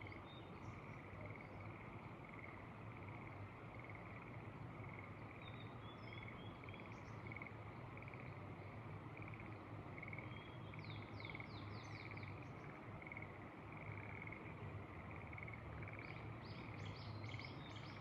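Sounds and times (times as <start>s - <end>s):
frogs trilling: 0.8s - 8.4s, 9.1s - 18.0s.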